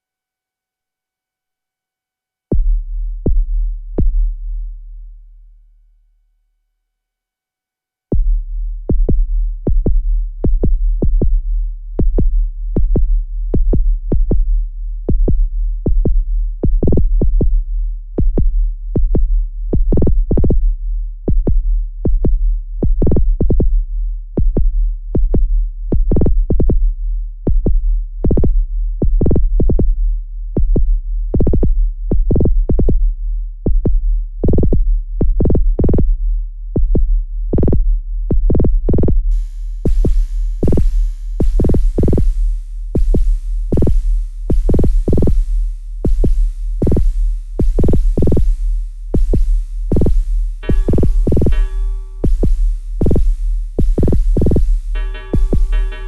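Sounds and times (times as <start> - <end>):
deep synth bass: 2.5 - 5.3, 8.2 - 56.0
electronic drum pattern: 39.4 - 56.0.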